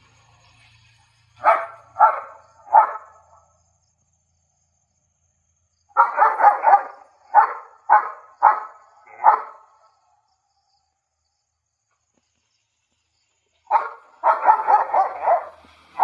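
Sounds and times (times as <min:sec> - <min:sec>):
dog barking: 0:01.4 - 0:03.4, 0:05.9 - 0:09.8, 0:13.7 - 0:16.0.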